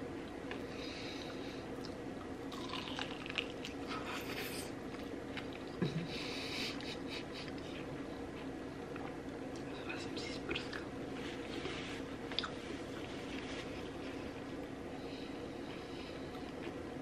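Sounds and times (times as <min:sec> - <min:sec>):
person chewing: 0:01.8 - 0:04.5.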